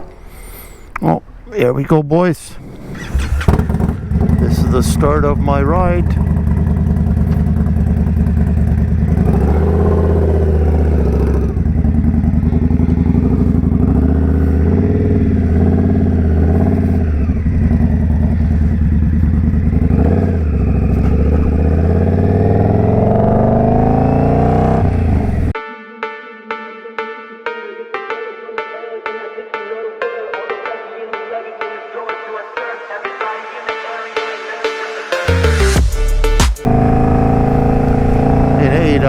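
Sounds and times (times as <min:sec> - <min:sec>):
motorcycle engine accelerating: 0:02.6 - 0:25.6, 0:35.3 - 0:39.0.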